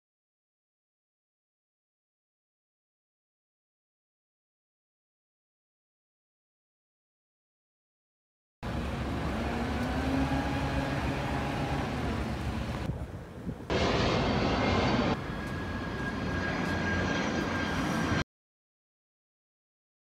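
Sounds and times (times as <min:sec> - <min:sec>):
wind noise: 0:08.7 - 0:18.2.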